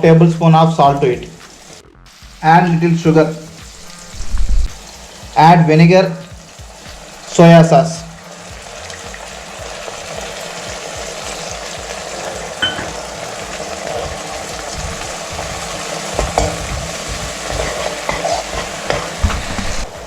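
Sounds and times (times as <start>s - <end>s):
vegetables sizzling in hot oil: 0.0s - 20.0s
spoon knocking against pan: 12.6s - 13.0s, 16.1s - 19.4s.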